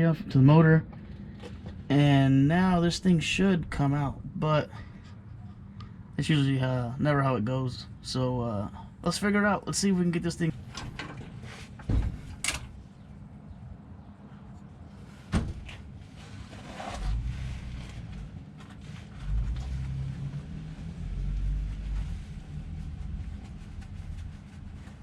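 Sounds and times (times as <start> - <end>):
transmission clunking and rumbling: 10.5 - 13.1.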